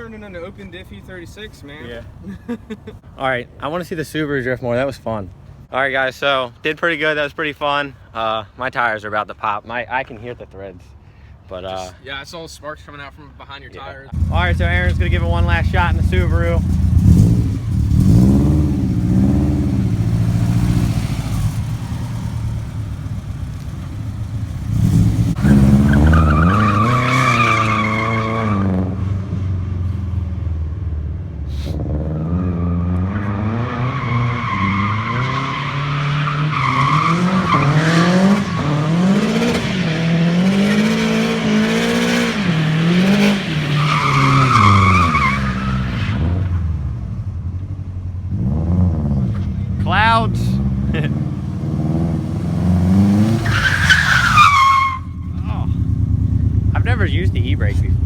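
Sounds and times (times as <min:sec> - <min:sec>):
car engine revving: 0:14.1 - 0:58.0
tyres squealing: 0:25.3 - 0:28.7, 0:41.4 - 0:46.3, 0:53.1 - 0:55.8.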